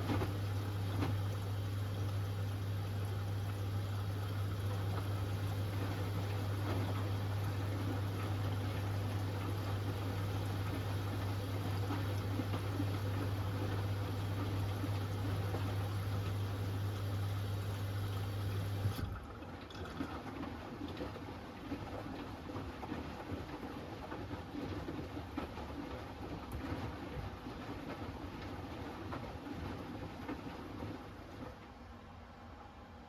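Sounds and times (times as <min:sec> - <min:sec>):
water gurgling and sloshing: 0:00.0 - 0:19.8
washing machine humming: 0:00.0 - 0:33.0.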